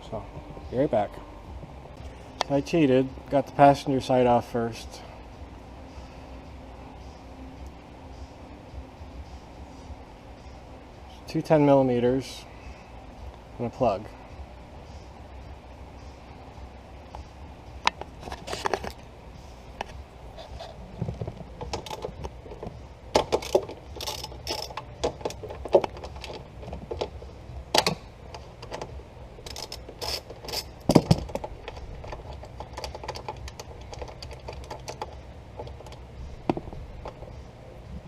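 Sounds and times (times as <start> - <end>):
tools and parts knocking: 21.1 - 27.1, 29.5 - 37.2
socket ratchet clicking: 21.6 - 22.4, 23.2 - 37.2.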